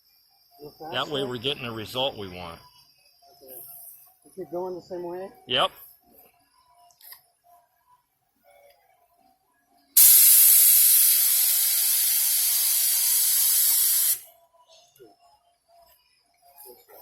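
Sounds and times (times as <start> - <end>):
paint spray gun hissing: 10.0 - 14.2.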